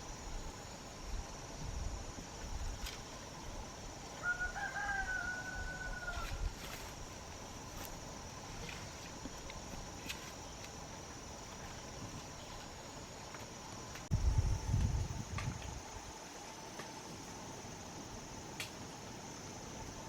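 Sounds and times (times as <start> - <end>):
rooster crowing: 4.2 - 6.5.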